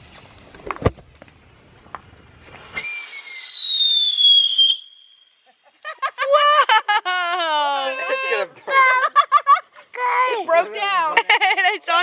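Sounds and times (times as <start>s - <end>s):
firework crack: 0.0s - 5.5s
whistling firework: 2.6s - 5.5s.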